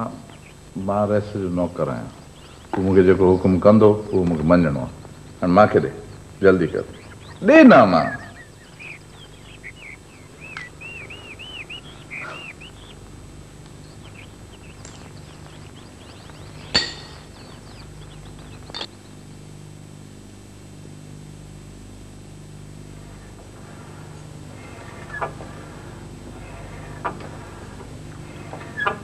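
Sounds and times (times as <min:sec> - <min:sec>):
small birds chirping: 0:00.0 - 0:19.4, 0:22.5 - 0:29.0
faint low hum: 0:00.0 - 0:29.0
sharp clinks: 0:16.6 - 0:17.4, 0:18.6 - 0:18.9.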